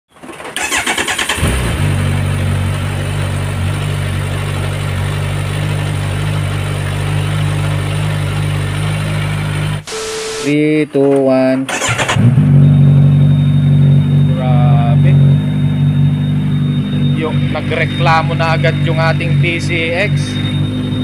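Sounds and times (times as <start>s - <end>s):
motorcycle starter cranking: 0.2s - 1.8s, 11.7s - 12.3s
motorcycle engine idling: 1.8s - 10.5s.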